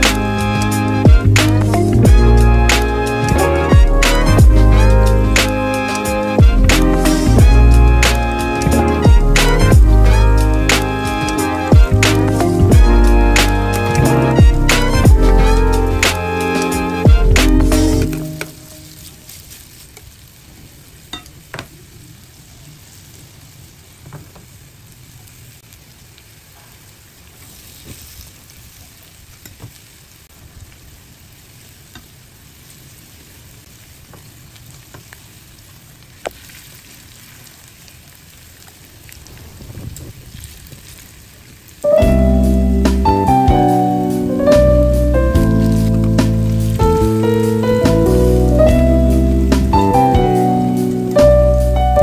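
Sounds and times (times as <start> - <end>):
pancakes sizzling in oil: 18.3 - 21.6, 25.2 - 41.9.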